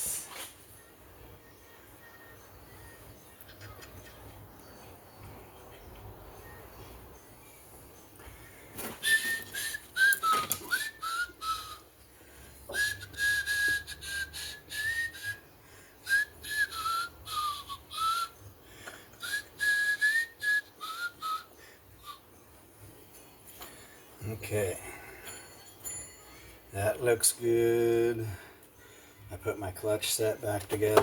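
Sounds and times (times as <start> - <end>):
man whistling a tune: 8.8 - 12.0, 12.7 - 18.5, 19.2 - 22.3.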